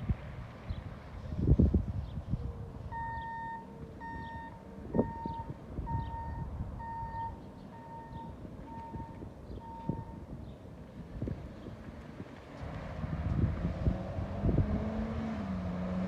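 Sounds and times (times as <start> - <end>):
electronic warning beeper: 2.9 - 10.2.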